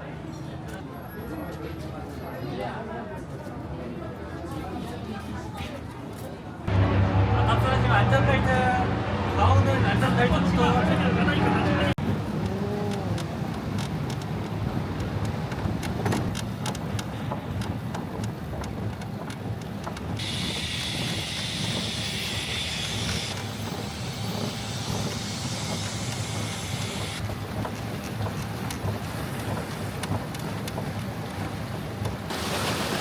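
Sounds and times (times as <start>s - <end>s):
rail bike rumbling on track: 6.6s - 33.0s
wheels clicking on rail: 9.5s - 33.0s.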